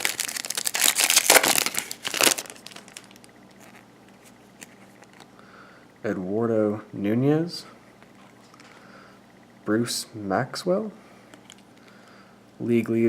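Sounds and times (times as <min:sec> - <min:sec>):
wrapper crinkling and tearing: 0:00.0 - 0:03.9.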